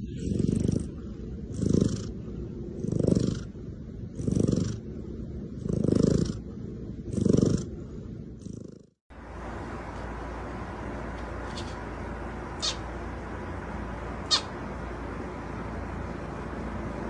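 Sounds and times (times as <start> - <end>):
cat purring: 0.0 - 4.8, 5.5 - 9.0.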